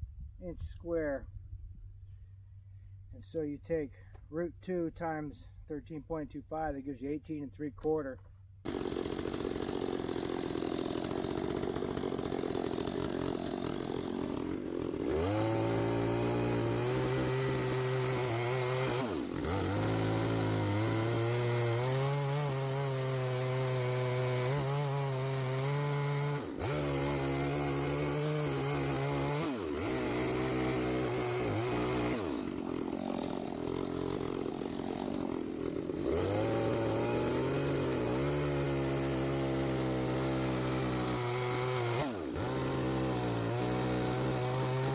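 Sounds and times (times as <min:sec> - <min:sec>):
chainsaw cutting wood: 0:08.6 - 0:44.9.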